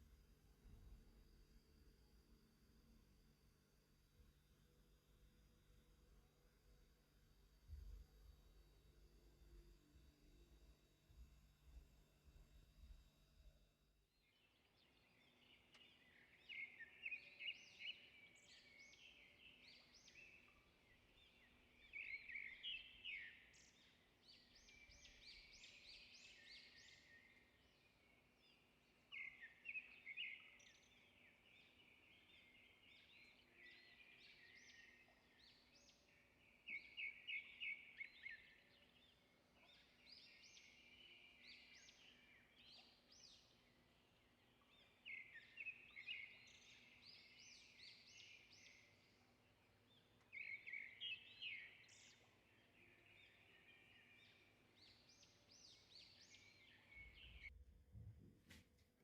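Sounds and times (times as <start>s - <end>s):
small birds chirping: 14.2s - 57.5s.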